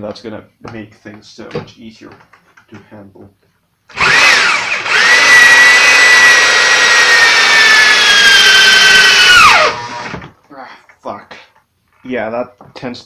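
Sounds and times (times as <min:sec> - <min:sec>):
electric drill boring into wood: 0:03.9 - 0:10.3.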